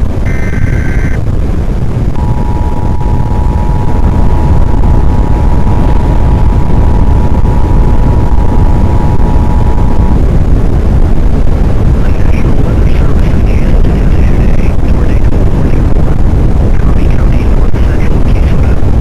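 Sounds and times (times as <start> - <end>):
loud low rumble: 0.0 - 19.0
two-tone alert signal: 0.3 - 1.2, 2.2 - 5.8.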